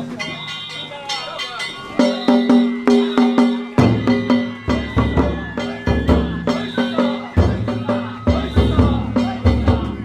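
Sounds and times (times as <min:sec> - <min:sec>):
ringing metal hand gongs: 0:00.0 - 0:09.9
taiko drums beating: 0:00.0 - 0:10.0.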